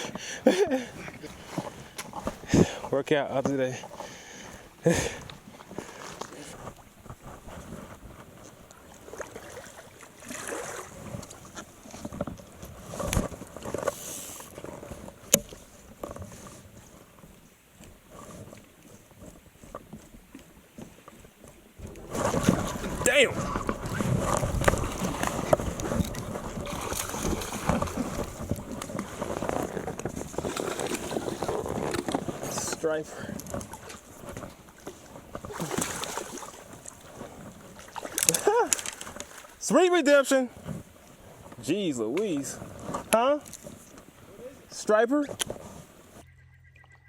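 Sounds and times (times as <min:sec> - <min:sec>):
water splashing: 0:03.5 - 0:44.7
knocks around a kayak: 0:10.7 - 0:17.1, 0:17.9 - 0:39.6.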